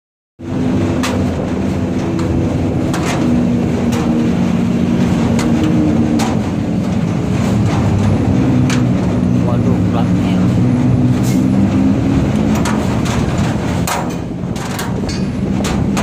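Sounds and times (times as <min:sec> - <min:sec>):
truck diesel engine running: 0:00.4 - 0:16.0
sharp clicks or rattles: 0:12.3 - 0:16.0.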